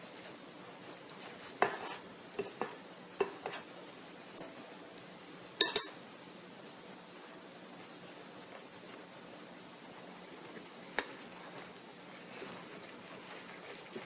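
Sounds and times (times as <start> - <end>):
spoon knocking against bowl: 5.6 - 6.0.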